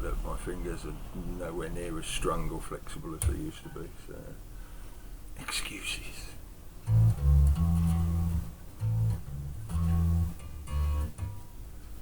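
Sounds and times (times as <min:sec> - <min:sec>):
electric bass guitar plucked notes: 0:06.8 - 0:11.5.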